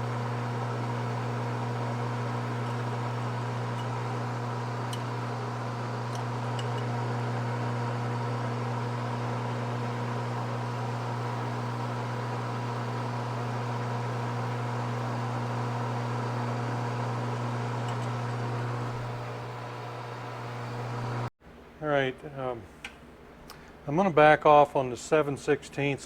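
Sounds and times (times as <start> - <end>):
drill bit boring into metal: 0.0 - 19.4
metal lathe motor hum: 0.0 - 21.3.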